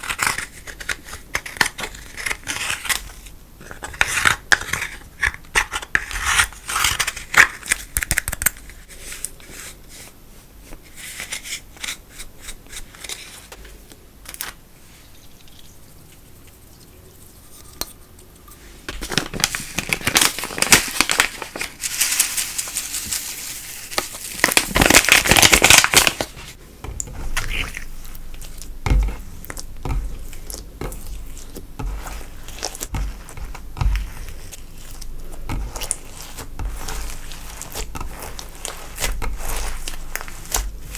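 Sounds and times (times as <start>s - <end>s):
slime crinkling and popping: 19.1s - 26.4s, 27.0s - 40.9s.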